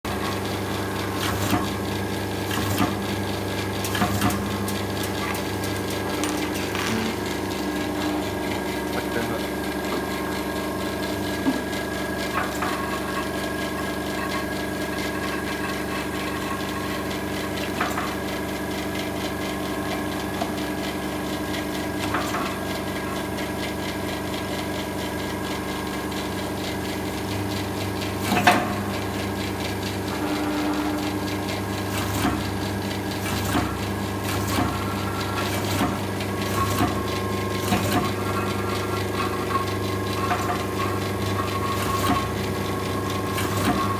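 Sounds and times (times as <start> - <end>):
machine humming: 0.1 - 17.6, 29.9 - 43.9.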